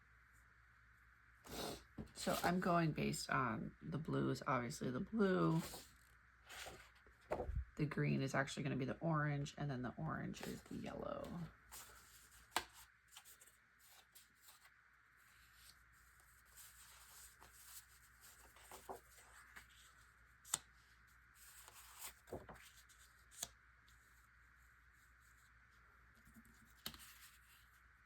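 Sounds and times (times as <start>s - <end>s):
paper rustling and sliding: 5.5s - 7.6s, 11.7s - 24.2s.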